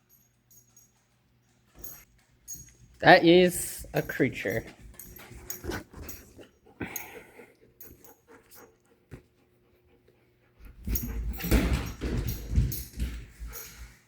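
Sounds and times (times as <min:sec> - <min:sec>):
puppy panting and snuffling: 0:04.6 - 0:11.4.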